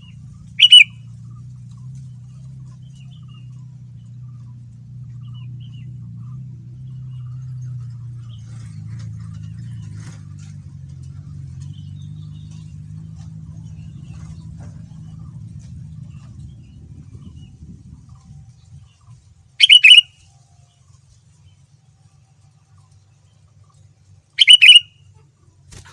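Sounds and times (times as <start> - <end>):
bird chirps: 0.0 - 1.2, 19.6 - 20.2, 24.4 - 25.2
steady low hum: 0.0 - 19.6.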